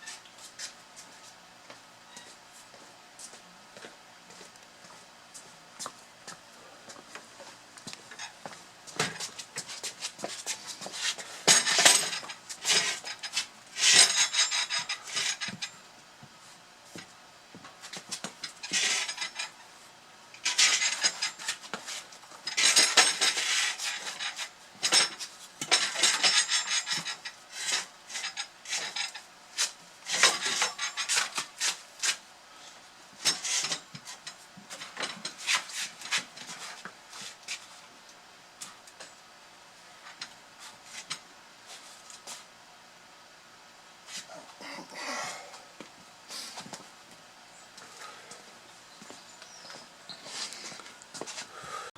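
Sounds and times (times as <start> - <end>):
firewood scraping down a pipe: 20.4 - 25.2.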